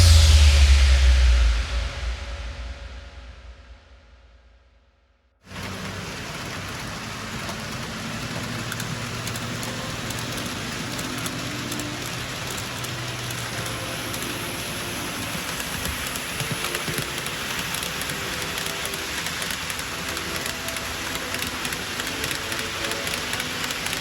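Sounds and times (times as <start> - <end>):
model train wheels rolling on rail: 5.5 - 24.0.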